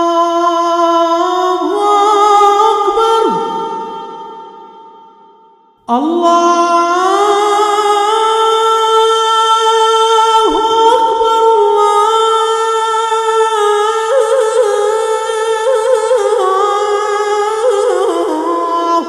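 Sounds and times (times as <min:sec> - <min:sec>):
man chanting call to prayer: 0:05.9 - 0:19.0.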